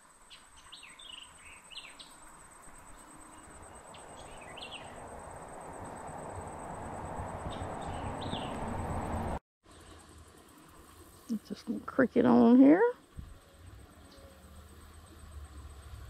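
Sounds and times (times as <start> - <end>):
high-pitched insect drone: 0.3 - 9.4
rushing outdoor noise: 0.8 - 16.0.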